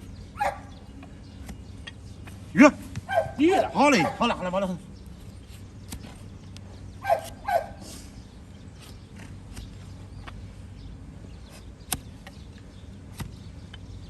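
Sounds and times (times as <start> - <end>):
dog barking: 0.4 - 0.7, 3.1 - 4.4, 7.0 - 7.8.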